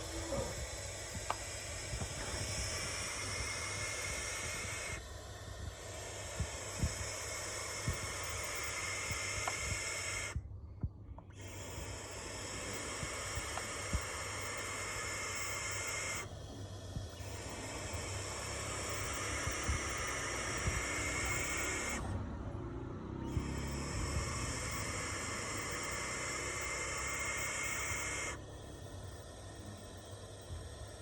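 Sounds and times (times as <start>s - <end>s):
barn owls screeching: 0.0s - 5.1s, 5.9s - 10.4s, 11.4s - 16.4s, 17.1s - 22.2s, 23.2s - 28.7s.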